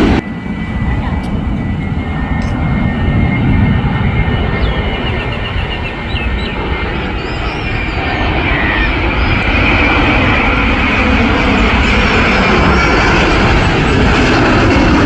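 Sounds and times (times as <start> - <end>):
jet airliner engine rumble: 0.0 - 15.0
bird chirps: 4.3 - 9.7.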